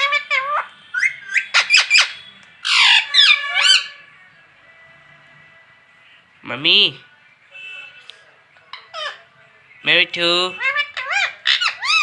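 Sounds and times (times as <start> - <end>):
parrot chirping and whistling: 0.0 - 3.9
parrot squawk: 0.0 - 4.1, 8.7 - 9.3, 10.5 - 12.0.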